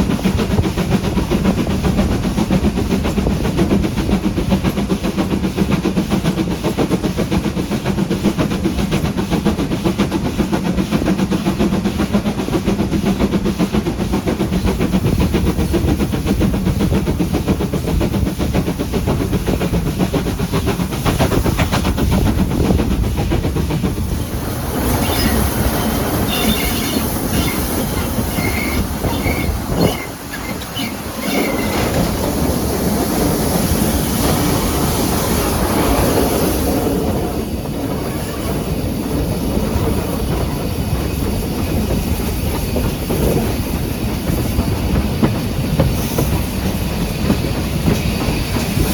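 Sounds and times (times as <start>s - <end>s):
train rumbling: 0.0s - 48.9s
train wheel hiss: 0.0s - 48.9s
wheels clacking over rail joints: 8.2s - 34.6s, 39.5s - 48.9s
high wheel squeals: 24.8s - 32.0s.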